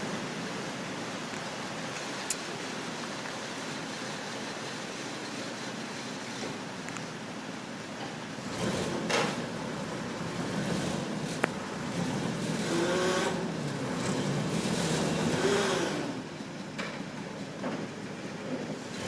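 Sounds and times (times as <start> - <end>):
engine revving: 8.4 - 9.4, 10.0 - 16.2.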